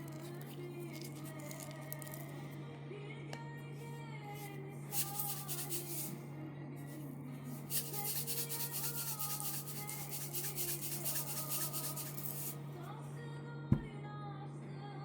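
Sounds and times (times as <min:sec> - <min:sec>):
soft background music: 0:00.0 - 0:15.0
quick rasping strokes: 0:04.9 - 0:06.1, 0:07.5 - 0:12.6.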